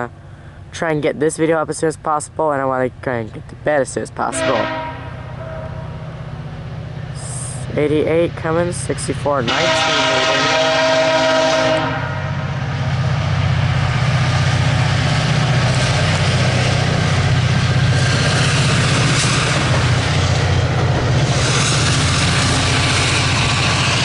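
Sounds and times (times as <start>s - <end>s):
diesel engine drone: 5.0s - 10.8s, 11.4s - 24.0s
train wheels on rails: 5.4s - 24.0s.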